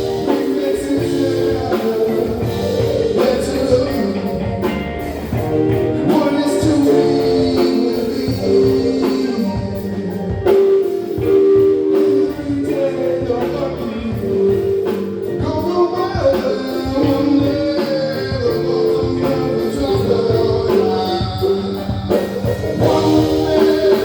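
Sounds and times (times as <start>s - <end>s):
drums: 0.0s - 24.0s
guitar: 0.0s - 24.0s
person singing: 0.0s - 24.0s.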